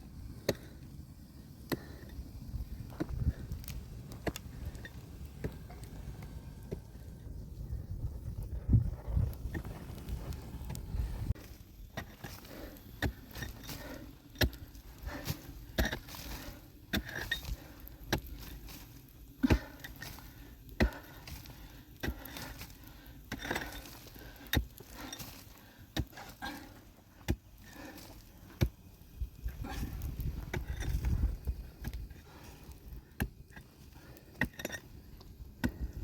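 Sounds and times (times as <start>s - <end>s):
faint rustling and scraping: 8.4s - 36.0s.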